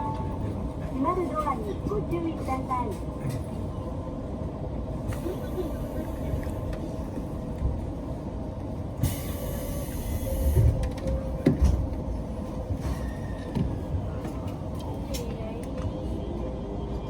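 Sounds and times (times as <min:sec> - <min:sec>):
train rumble and hum: 0:00.0 - 0:17.0
train doors thumping: 0:10.4 - 0:12.1.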